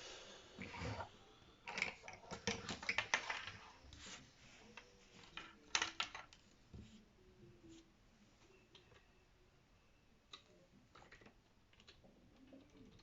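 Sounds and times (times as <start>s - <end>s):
small objects clicking on a table: 5.4s - 6.4s.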